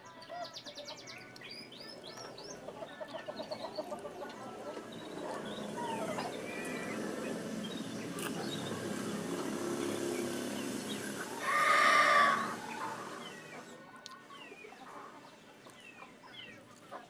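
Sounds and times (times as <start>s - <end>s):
low murmur: 1.4s - 17.0s
loud drawn-out animal call: 10.7s - 13.7s.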